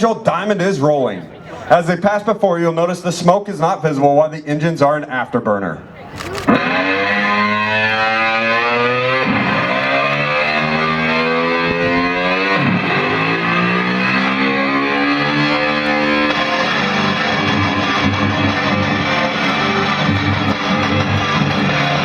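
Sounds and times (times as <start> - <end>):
rock music with electric guitar: 6.4 - 22.0.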